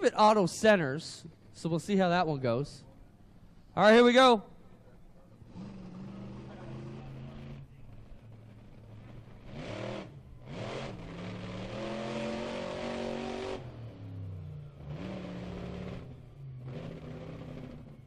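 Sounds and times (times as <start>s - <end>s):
truck engine revving: 5.3s - 18.0s.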